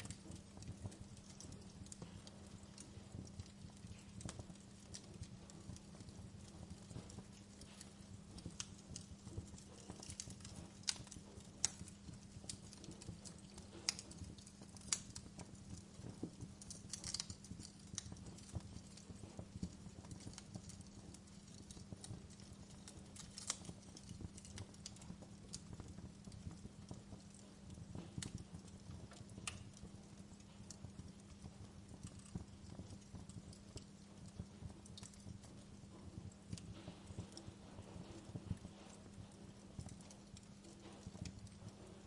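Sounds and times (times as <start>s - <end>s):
fire crackling and popping: 0.0s - 42.0s
low fire rumble: 0.0s - 42.0s.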